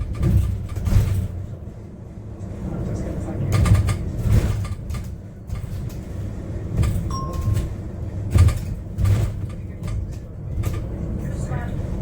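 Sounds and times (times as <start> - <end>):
body knocks and rattles: 0.0 - 1.4, 6.8 - 10.8
bus interior rumble: 0.0 - 12.0
short beep: 7.1 - 7.7.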